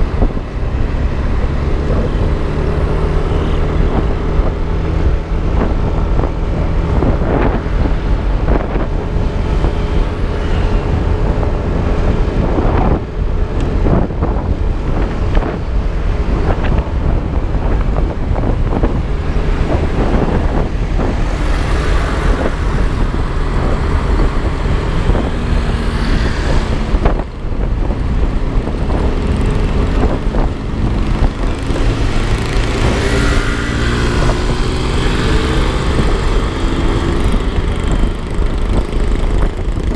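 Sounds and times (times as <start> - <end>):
road traffic: 0.0 - 39.9
wind buffeting microphone: 0.0 - 39.9
scooter engine running: 16.6 - 39.9.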